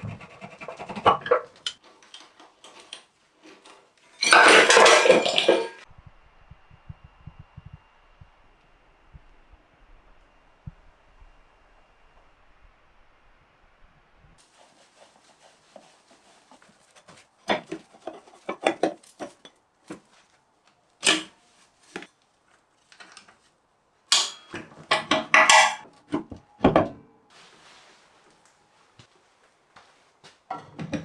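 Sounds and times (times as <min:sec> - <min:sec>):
metal tools clinking: 0:04.1 - 0:05.8, 0:24.1 - 0:25.9.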